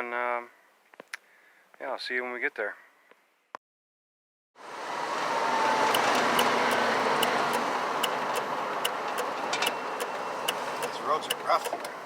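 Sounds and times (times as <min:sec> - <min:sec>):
road and tyre rumble: 0:04.6 - 0:12.0.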